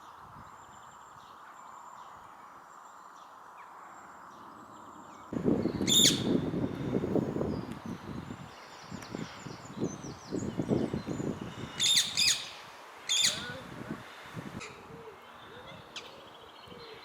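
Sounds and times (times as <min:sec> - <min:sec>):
steady background hiss: 0:00.0 - 0:17.0
faint bird calls: 0:11.0 - 0:17.0.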